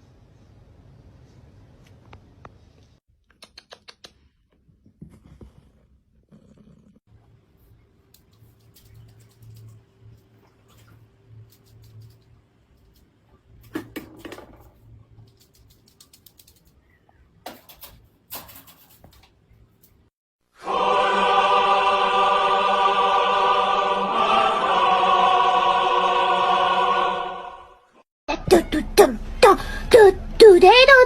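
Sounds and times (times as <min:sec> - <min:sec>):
held choir-like chord: 0:20.6 - 0:27.8.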